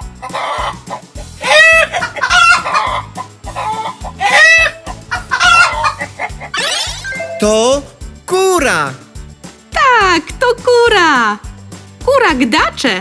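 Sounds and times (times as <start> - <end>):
light background music: 0.0 - 13.0
hen clucking: 0.2 - 7.6.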